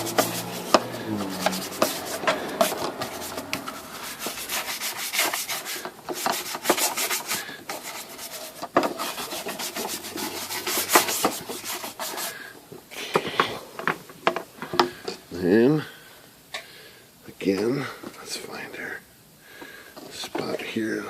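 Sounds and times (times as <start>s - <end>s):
rag scrubbing typewriter casing: 0.0s - 12.3s.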